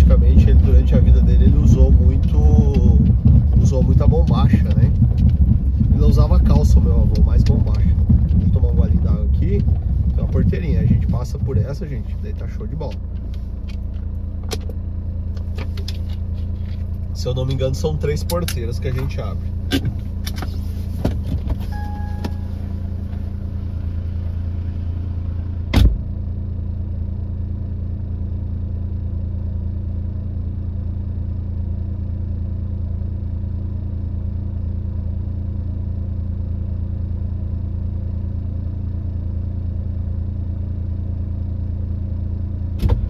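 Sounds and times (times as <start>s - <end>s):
car engine humming: 0.0s - 43.0s
loud thump: 25.7s - 26.1s, 42.8s - 43.0s.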